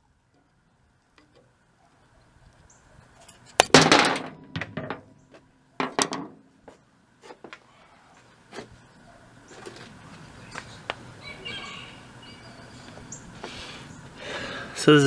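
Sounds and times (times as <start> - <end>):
metal parts clunking and scraping: 3.2 - 6.4.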